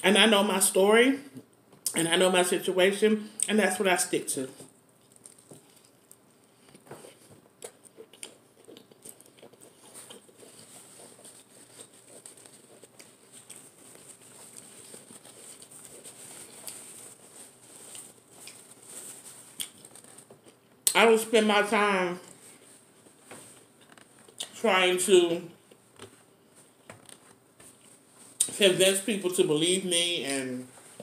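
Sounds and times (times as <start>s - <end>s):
chewing crunchy food: 4.9s - 20.7s
paper napkin crumpling: 9.8s - 20.4s.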